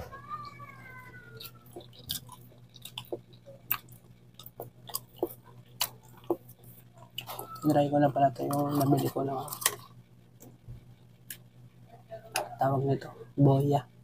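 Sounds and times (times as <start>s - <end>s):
wet chewing and mouth clicks: 1.4s - 7.4s.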